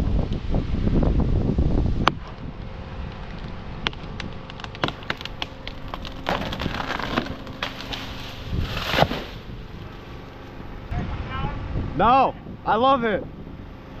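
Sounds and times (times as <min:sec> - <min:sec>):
wood cracking and snapping: 0:03.0 - 0:10.0
branches breaking: 0:03.1 - 0:10.6
tree crashing down: 0:03.1 - 0:10.6.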